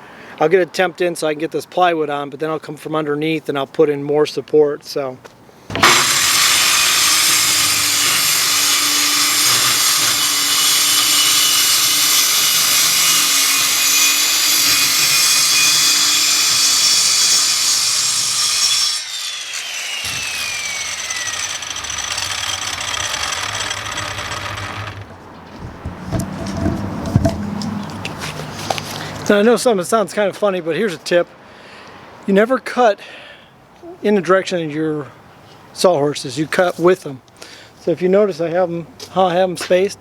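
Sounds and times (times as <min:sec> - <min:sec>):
saw blade winding down whine: 0:05.7 - 0:25.1
circular saw cutting wood: 0:05.7 - 0:25.2, 0:25.8 - 0:27.8.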